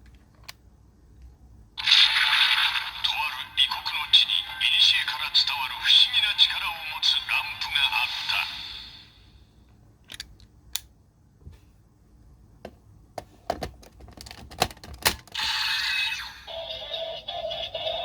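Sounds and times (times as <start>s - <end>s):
toy electronic sound effect: 1.8s - 3.2s, 15.4s - 18.0s
plastic toy clicks and snaps: 10.1s - 10.9s.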